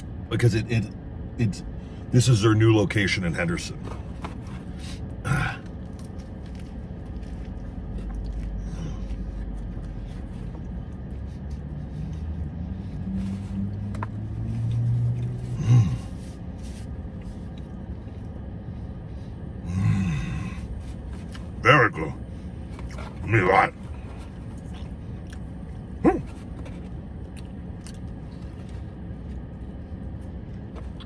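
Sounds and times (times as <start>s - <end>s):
steady low rumble: 0.0s - 31.0s
man chewing food: 3.8s - 21.6s, 22.2s - 31.0s
man humming approval: 26.0s - 26.3s.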